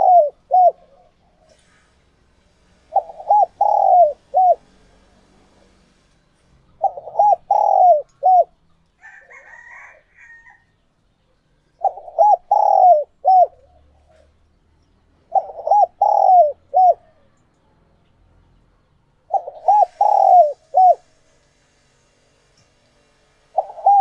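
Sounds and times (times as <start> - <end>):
dove cooing: 0.0 - 1.7, 2.9 - 4.8, 6.8 - 8.6, 11.8 - 14.4, 15.3 - 17.2, 19.3 - 21.1, 23.6 - 24.0
higher bird call: 2.9 - 4.6, 6.8 - 8.5, 11.8 - 13.6, 15.3 - 17.0, 19.3 - 21.0, 23.6 - 24.0.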